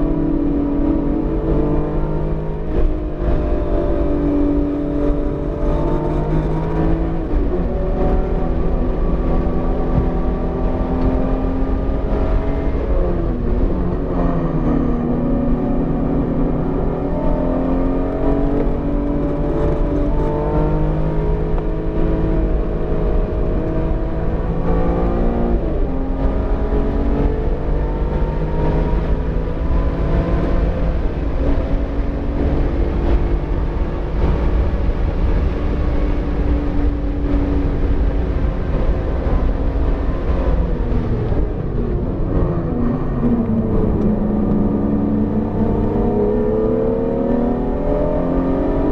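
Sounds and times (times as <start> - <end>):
car engine at speed: 0.0 - 48.9
road and wind noise: 0.0 - 48.9.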